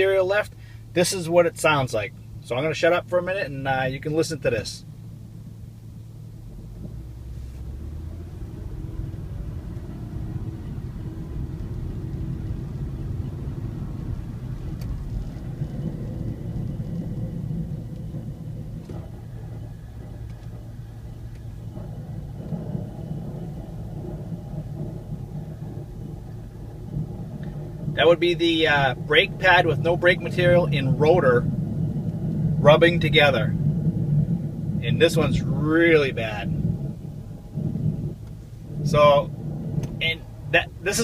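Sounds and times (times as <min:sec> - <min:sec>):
car brakes grinding: 0:04.8 - 0:41.0.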